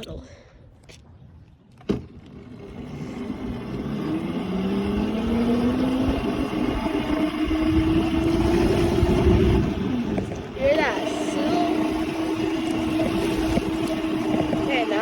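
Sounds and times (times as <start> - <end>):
motor whine rising in pitch: 2.2 - 15.0.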